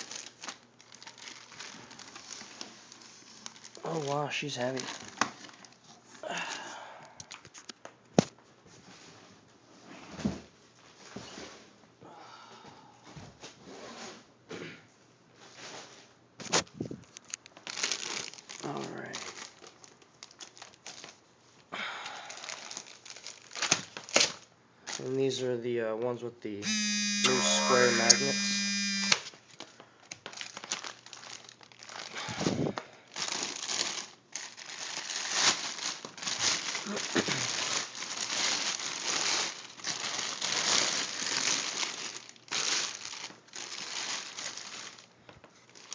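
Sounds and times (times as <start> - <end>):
packaging rustling: 0.0 - 5.8, 16.4 - 21.2, 22.4 - 25.0, 28.8 - 32.2, 33.1 - 45.9.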